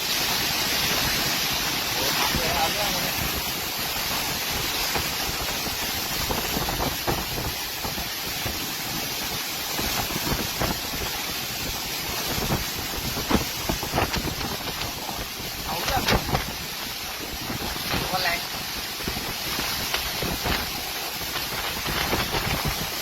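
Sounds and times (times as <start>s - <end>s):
storm wind buffeting microphone: 0.7s - 23.0s.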